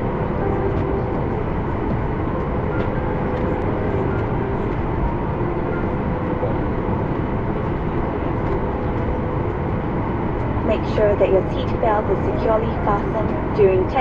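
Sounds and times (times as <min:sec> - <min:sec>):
aircraft cabin low rumble: 0:00.0 - 0:14.0.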